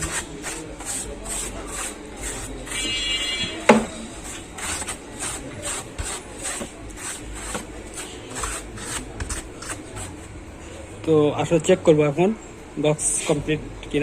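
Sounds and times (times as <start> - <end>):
rubbing on wood: 0.0 - 10.2
sharp knock on wood: 3.7 - 3.9.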